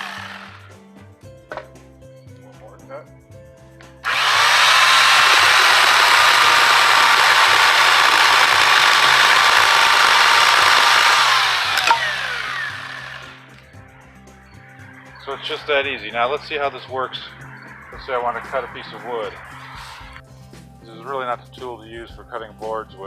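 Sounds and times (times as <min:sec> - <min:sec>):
electric chainsaw whining: 0:00.0 - 0:00.8, 0:04.0 - 0:13.7.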